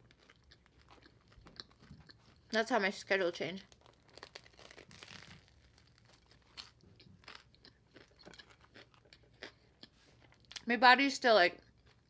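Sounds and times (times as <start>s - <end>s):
person chewing: 0.0s - 2.6s, 3.6s - 10.7s.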